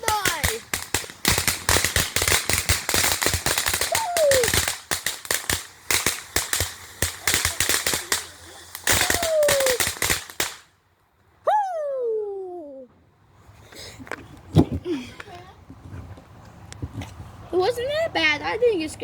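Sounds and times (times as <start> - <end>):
firework cracks and pops: 0.0 - 10.8.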